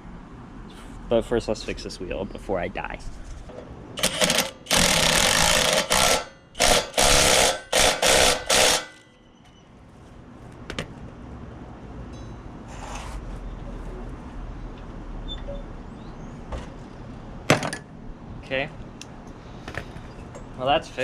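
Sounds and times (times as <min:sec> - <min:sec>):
impact wrench rattling: 0:04.0 - 0:09.1.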